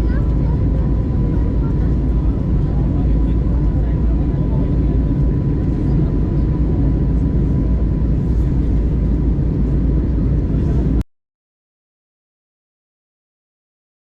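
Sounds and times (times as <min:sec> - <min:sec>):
airliner cabin engine rumble: 0:00.0 - 0:11.1.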